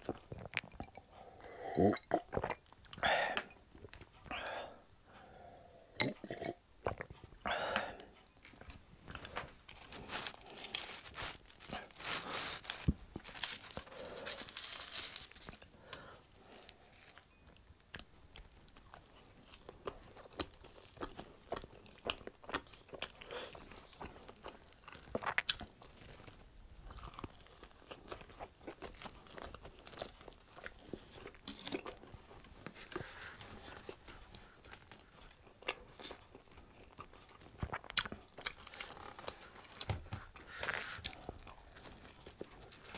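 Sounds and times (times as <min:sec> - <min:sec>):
pizza crust crunching: 0:09.1 - 0:17.2.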